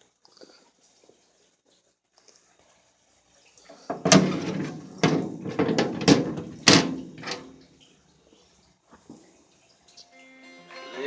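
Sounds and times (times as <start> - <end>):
heavy knocks and clunks: 3.9 - 7.6.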